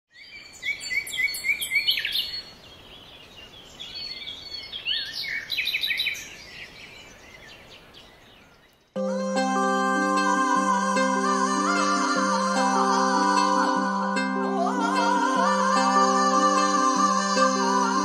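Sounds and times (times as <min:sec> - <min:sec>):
birds chirping and singing: 0:00.1 - 0:09.0.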